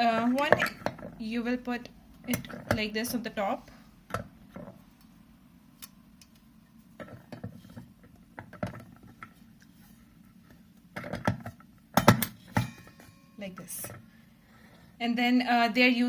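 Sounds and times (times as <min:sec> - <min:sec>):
plastic parts clicking and knocking: 0:07.0 - 0:09.4, 0:10.9 - 0:12.7.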